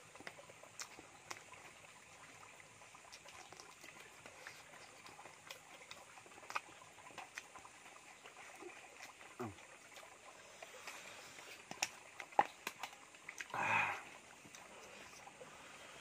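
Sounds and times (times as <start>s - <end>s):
man chewing with wet mouth clicks: 0.1s - 1.7s, 3.0s - 9.2s, 10.8s - 13.5s, 14.4s - 14.8s.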